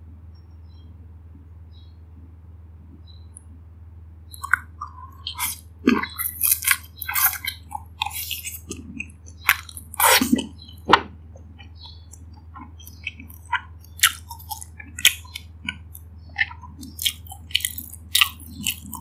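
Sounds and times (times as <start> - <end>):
faint low hum: 0.0 - 19.0
person chewing wet smacks: 4.3 - 19.0.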